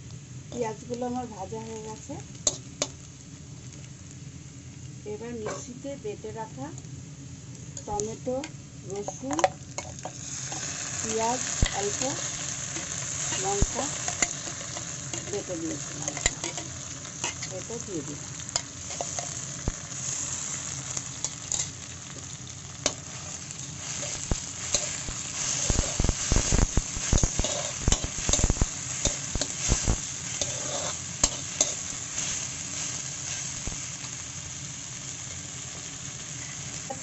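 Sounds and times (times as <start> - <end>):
paste sizzling in hot oil: 8.9 - 37.0
metal spatula scraping a wok: 18.5 - 19.4, 22.8 - 33.5.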